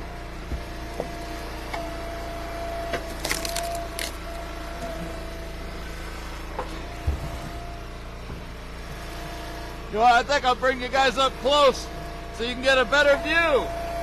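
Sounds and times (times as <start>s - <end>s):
hydraulic log splitter running: 0.0s - 14.0s
wood cracking and splintering: 2.8s - 4.8s.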